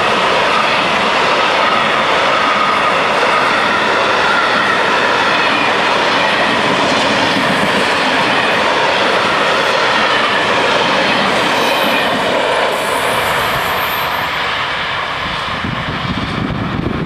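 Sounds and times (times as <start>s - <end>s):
high wheel squeal: 7.2s - 14.6s.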